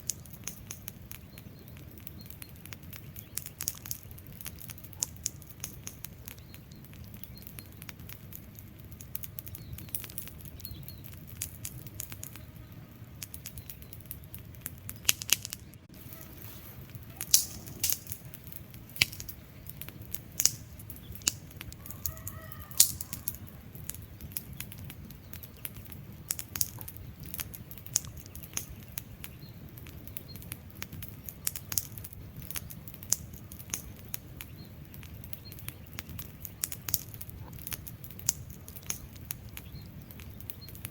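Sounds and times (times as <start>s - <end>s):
low rumble of flames: 0.0s - 40.9s
wood fire crackling: 0.0s - 40.9s.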